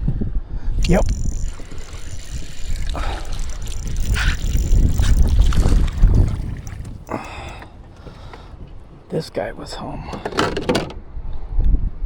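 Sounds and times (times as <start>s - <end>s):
wind buffeting microphone: 0.0s - 10.1s
water splashing: 0.8s - 9.1s.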